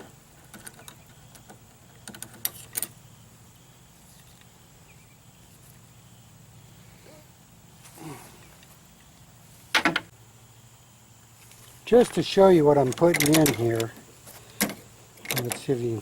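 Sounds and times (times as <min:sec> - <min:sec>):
light clicks and knocks: 0:12.8 - 0:15.8.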